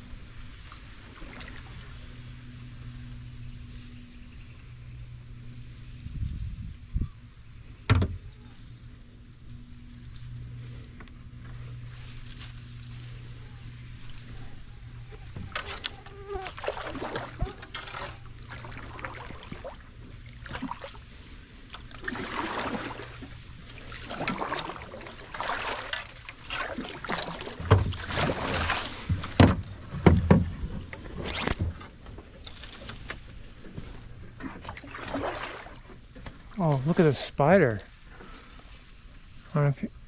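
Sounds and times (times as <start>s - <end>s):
paddle strokes swishing through water: 10.5s - 37.2s.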